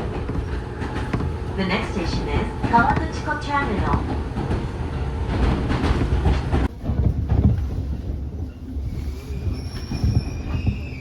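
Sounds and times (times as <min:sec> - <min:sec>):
train wheels clickety-clack: 0:00.0 - 0:11.0
train brakes squealing: 0:08.5 - 0:11.0.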